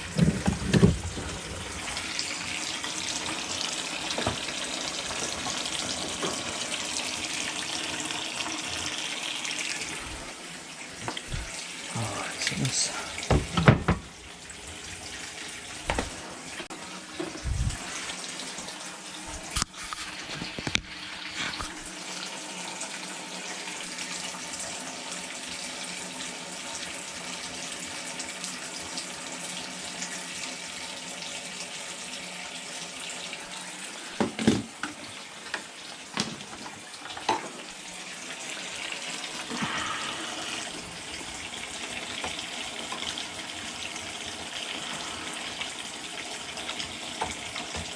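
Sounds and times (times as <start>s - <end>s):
water running from a tap: 0.0s - 47.9s
plumbing knocks and clunks: 0.1s - 1.7s, 13.2s - 14.2s, 15.8s - 16.2s, 34.2s - 34.8s.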